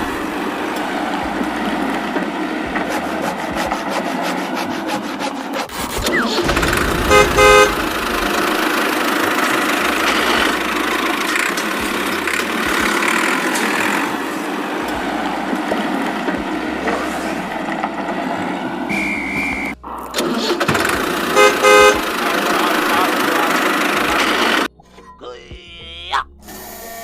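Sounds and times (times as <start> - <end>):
toy tractor engine running: 0.0 - 18.2, 20.2 - 24.7
short horn beep: 7.0 - 8.0, 21.4 - 22.1.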